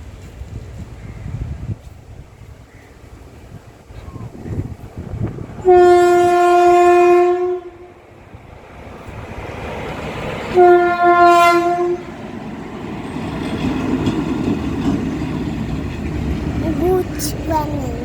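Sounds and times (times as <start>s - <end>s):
train rumble: 3.1s - 18.0s
locomotive horn blasts: 5.6s - 7.9s, 10.6s - 12.1s.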